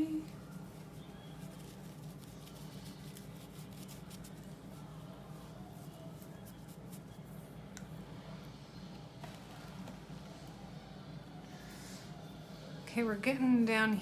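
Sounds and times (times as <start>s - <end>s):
low steady hum: 0.0s - 14.0s
paintbrush scratching on paper: 0.3s - 7.5s.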